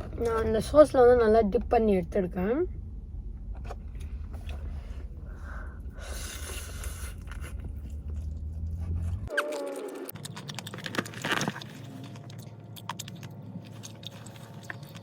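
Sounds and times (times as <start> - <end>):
low hum: 0.0 - 15.0
crunchy chewing: 6.7 - 15.0.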